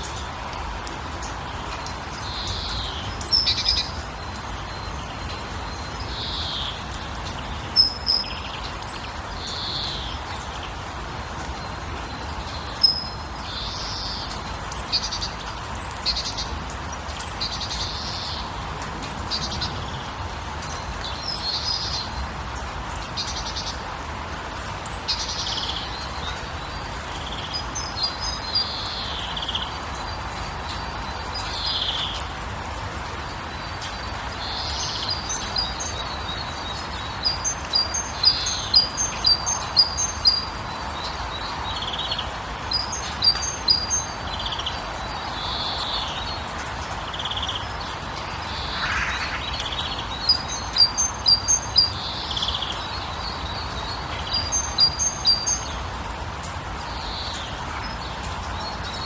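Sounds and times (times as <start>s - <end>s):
songbirds chirping: 0.0s - 59.0s
steady background hiss: 20.0s - 59.0s
bird downward-slurred calls: 48.3s - 50.4s.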